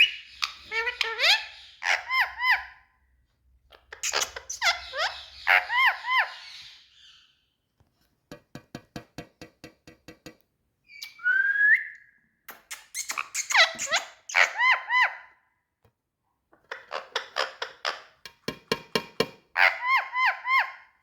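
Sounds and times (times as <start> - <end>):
parakeet whistled calls: 0.0 - 2.7, 4.0 - 7.3, 10.9 - 12.1, 12.7 - 15.2.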